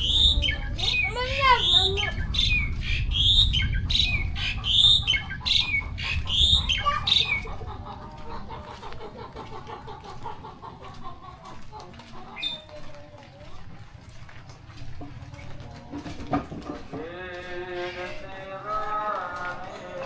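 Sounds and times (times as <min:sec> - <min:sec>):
bird calling shrilly: 0:00.0 - 0:07.5, 0:12.4 - 0:12.7
low rumble: 0:00.0 - 0:08.7.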